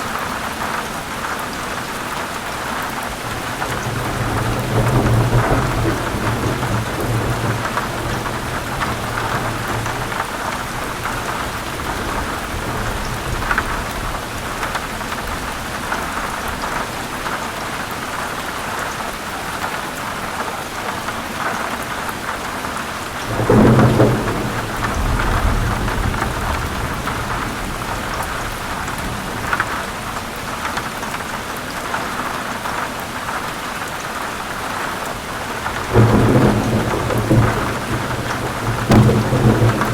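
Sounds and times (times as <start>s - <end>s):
heavy rain on leaves: 0.0s - 39.9s
thunder rumbling: 3.1s - 17.0s, 23.2s - 30.8s, 35.2s - 39.9s.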